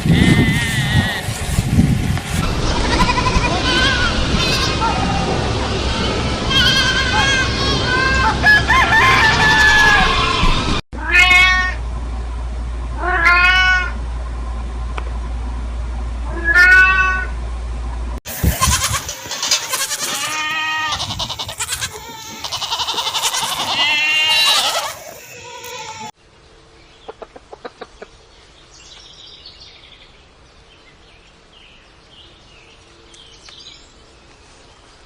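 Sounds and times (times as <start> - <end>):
low steady hum: 0.0 - 18.6
cat meowing: 11.0 - 11.8, 13.0 - 13.9, 16.4 - 17.3.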